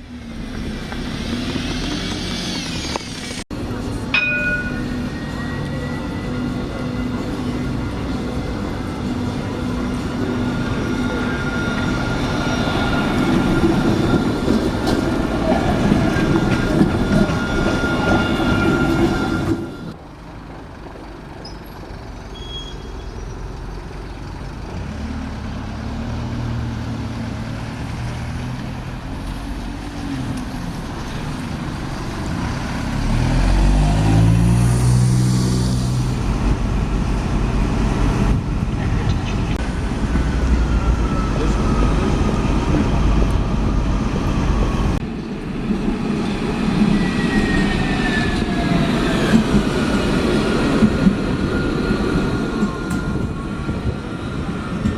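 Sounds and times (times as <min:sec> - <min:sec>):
bus engine revving: 0:00.0 - 0:03.5, 0:23.4 - 0:45.0
heavy traffic: 0:00.0 - 0:54.9.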